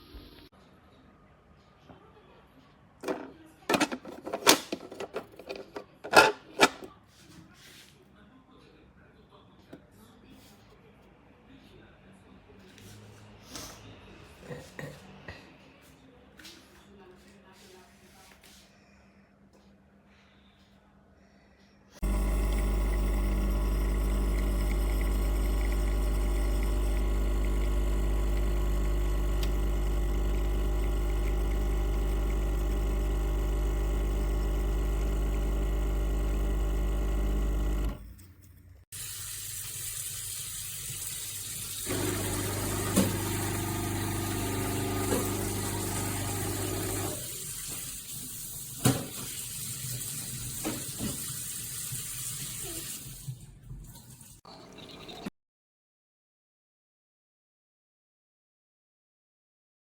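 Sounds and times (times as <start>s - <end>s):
espresso machine pump buzzing: 22.0s - 38.0s, 41.8s - 47.4s.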